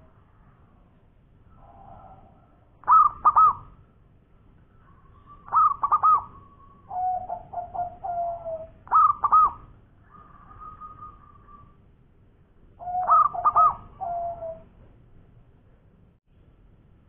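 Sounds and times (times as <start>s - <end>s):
dove cooing: 2.8s - 3.7s, 5.1s - 11.8s, 12.8s - 14.8s.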